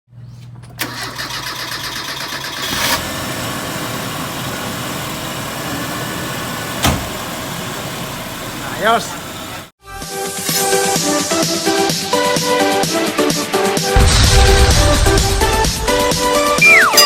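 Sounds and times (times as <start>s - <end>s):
car engine cranking and running: 0.6s - 9.7s.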